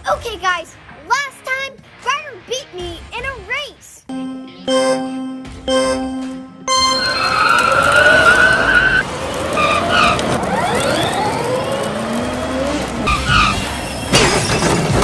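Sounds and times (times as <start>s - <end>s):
tyres skidding: 6.8s - 15.0s
race car engines revving: 6.9s - 15.0s.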